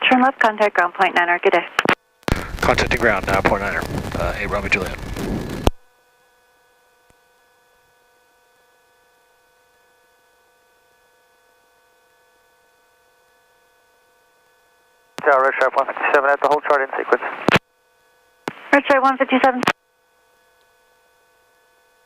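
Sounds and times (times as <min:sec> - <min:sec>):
radio voice: 0:00.1 - 0:05.0, 0:15.2 - 0:17.6, 0:18.5 - 0:19.7.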